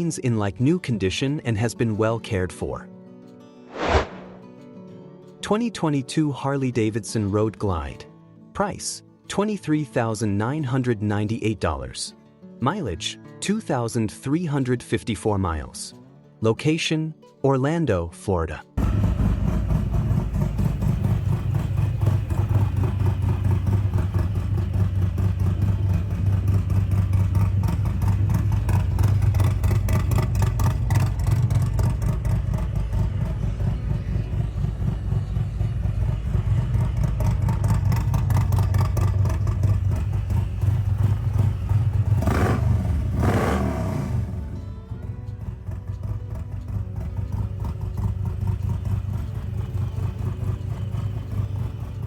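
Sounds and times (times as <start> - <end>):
motorcycle engine running: 18.8 - 52.0.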